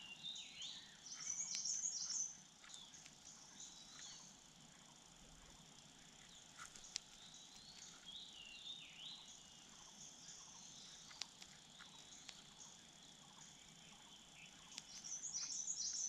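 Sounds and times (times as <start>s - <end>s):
insects trilling: 0.0s - 16.0s
sharp clicks: 1.1s - 4.3s, 5.7s - 8.1s, 10.9s - 12.8s, 14.6s - 16.0s.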